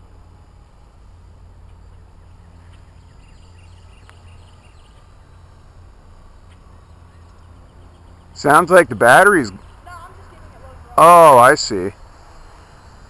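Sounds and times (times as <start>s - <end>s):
rc helicopter hovering: 0.0s - 13.0s.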